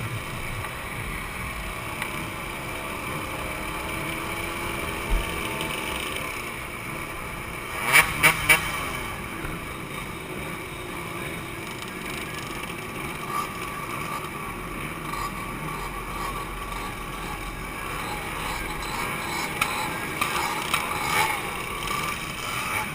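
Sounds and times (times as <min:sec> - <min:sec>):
two-stroke motorcycles running: 0:00.0 - 0:22.9.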